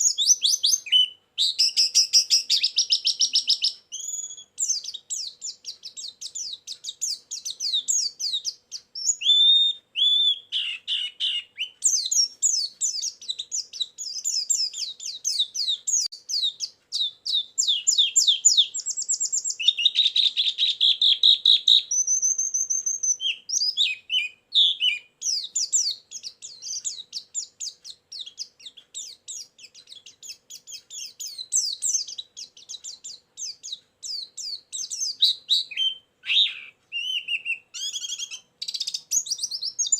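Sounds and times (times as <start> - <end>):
thin steady whistle: 0.0 - 10.5, 16.4 - 28.4
bird twittering song: 0.0 - 39.9.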